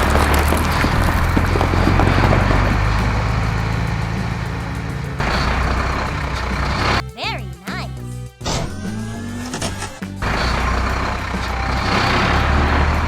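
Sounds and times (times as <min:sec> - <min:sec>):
background music: 0:01.0 - 0:13.0
cartoon truck engine rumble: 0:08.5 - 0:13.0.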